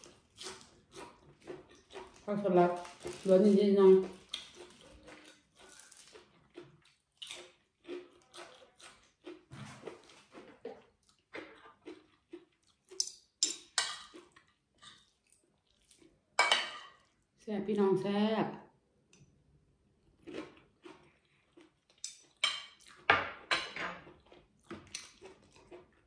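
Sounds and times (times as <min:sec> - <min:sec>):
chewing and wet mouth smacks: 0:00.0 - 0:03.2, 0:04.0 - 0:16.2, 0:20.2 - 0:23.1, 0:24.1 - 0:26.0
spoon and fork on plate: 0:12.9 - 0:15.0, 0:16.4 - 0:17.0, 0:22.0 - 0:24.1.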